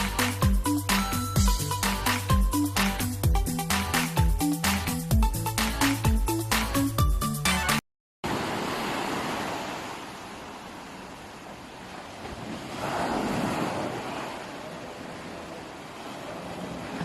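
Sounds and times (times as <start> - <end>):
sea surf washing: 8.2 - 17.0.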